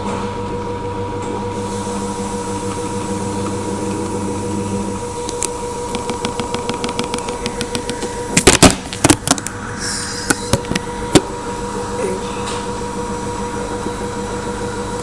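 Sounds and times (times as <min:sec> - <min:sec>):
washing machine spinning: 0:00.0 - 0:15.0
rapid even clicks: 0:05.4 - 0:09.5
loud knocks: 0:05.9 - 0:09.4.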